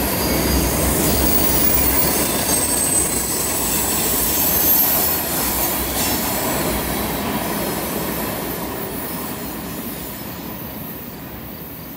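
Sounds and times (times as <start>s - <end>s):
high thin wheel squeal: 0.0s - 6.3s
steel wheels on rail: 0.0s - 11.9s.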